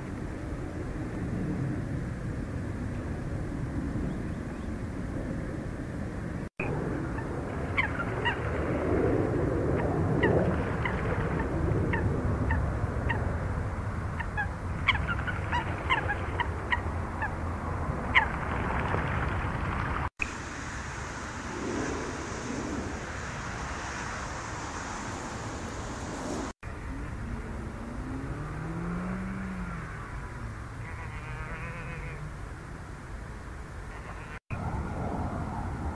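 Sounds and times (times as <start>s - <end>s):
steady low rumble: 0.0s - 28.3s
steady high hiss: 20.2s - 27.9s.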